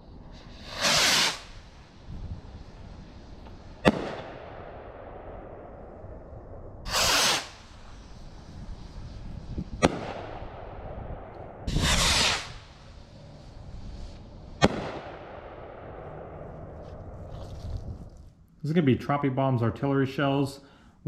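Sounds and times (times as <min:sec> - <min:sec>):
firework rocket whoosh: 0:00.0 - 0:18.2
firework bang: 0:00.5 - 0:01.6, 0:03.8 - 0:05.6, 0:06.8 - 0:07.9, 0:09.7 - 0:12.7, 0:14.6 - 0:17.2.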